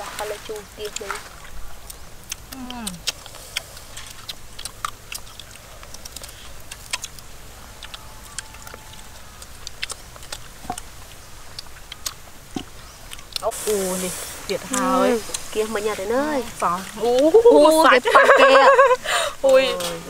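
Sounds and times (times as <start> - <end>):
crisp fruit crunching bites: 1.8 - 13.6.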